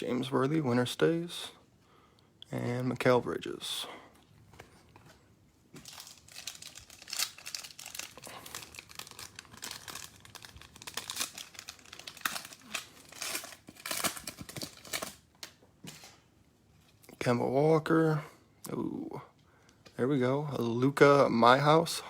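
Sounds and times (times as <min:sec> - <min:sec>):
plastic wrapper crinkling and tearing: 0:05.7 - 0:15.6.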